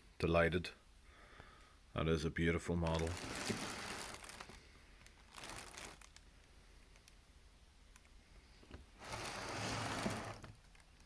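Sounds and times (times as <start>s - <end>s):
packaging rustling: 2.9s - 6.2s, 9.0s - 11.0s.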